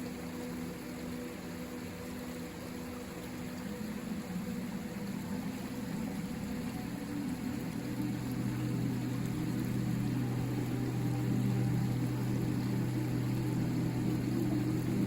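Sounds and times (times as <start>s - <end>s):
low droning motor hum: 0.1s - 15.0s
river water rushing: 1.0s - 15.0s.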